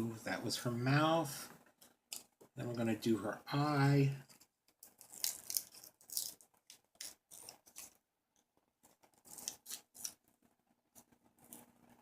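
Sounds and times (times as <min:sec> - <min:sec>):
scissors snipping paper: 0:04.3 - 0:08.0, 0:08.8 - 0:10.2.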